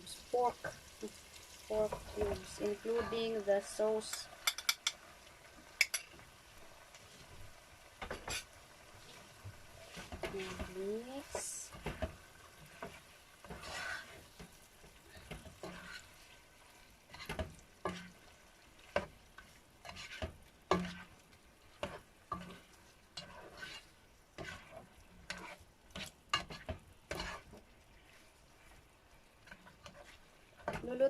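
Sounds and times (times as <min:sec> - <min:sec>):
pork sizzling in a pan: 0:00.0 - 0:31.0
utensil scraping a pan: 0:08.0 - 0:16.4, 0:17.0 - 0:28.8, 0:29.4 - 0:31.0.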